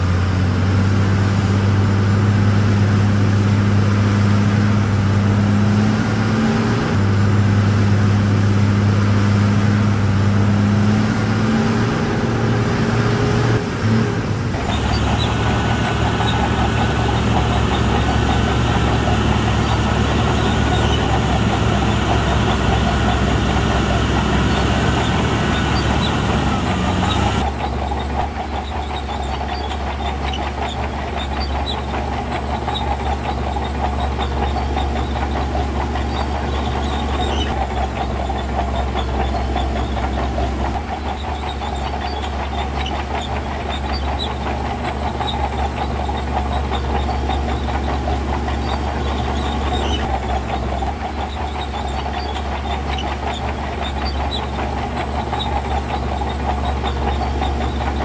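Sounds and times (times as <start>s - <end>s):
diesel engine rumble: 0.0s - 58.0s
rapid metallic clatter: 14.4s - 58.0s.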